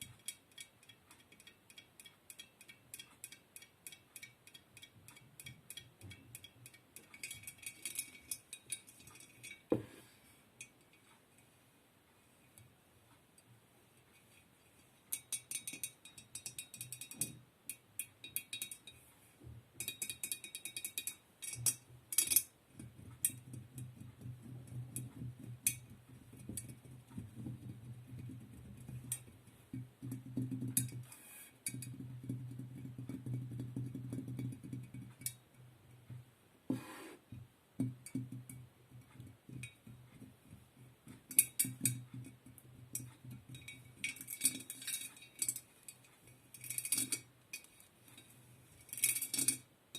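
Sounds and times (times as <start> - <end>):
tapping and clinking on hard objects: 19.8 - 26.8.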